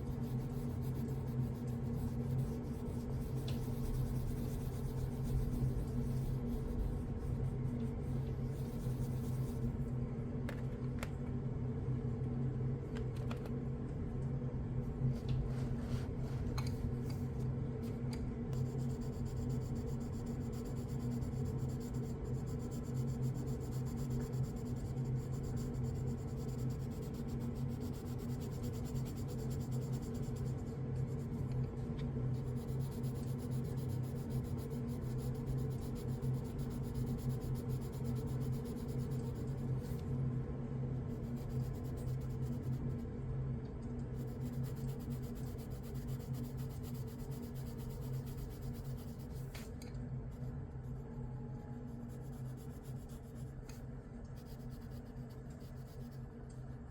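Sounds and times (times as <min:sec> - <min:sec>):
pencil scratching on paper: 0:00.0 - 0:09.8, 0:18.6 - 0:31.6, 0:32.3 - 0:40.1, 0:41.1 - 0:43.0, 0:44.1 - 0:49.7, 0:50.3 - 0:56.3
steady low hum: 0:00.0 - 0:56.9.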